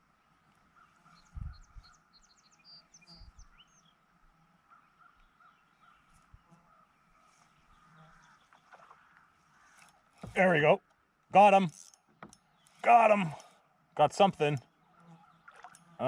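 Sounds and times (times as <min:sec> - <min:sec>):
bird chirps and trills: 0:00.7 - 0:04.0
soft repeated bird call: 0:04.7 - 0:10.4, 0:14.7 - 0:16.0.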